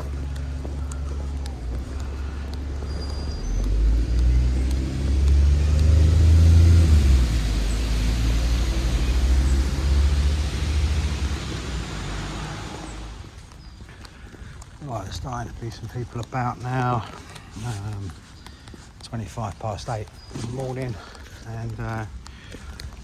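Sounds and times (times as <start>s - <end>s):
vehicle engine rumbling: 0.0s - 13.7s
rain hissing: 1.4s - 13.4s.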